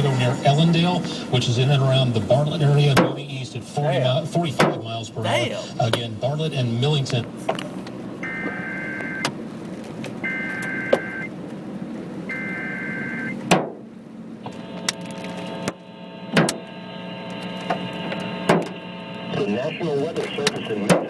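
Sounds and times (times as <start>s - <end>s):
road noise: 0.0s - 21.0s
two-tone attention signal: 10.3s - 11.3s.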